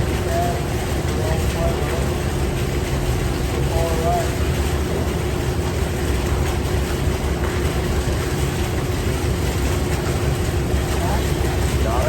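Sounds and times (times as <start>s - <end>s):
boat motor droning: 0.0s - 12.0s.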